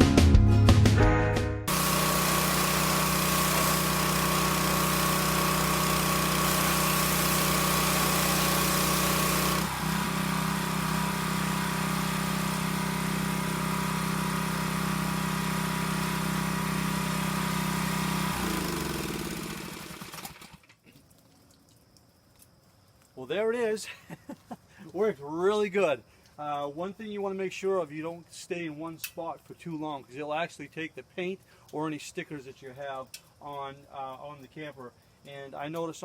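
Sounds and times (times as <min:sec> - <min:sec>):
water spray hissing: 0:01.7 - 0:19.8
pressure washer engine running: 0:01.7 - 0:20.6.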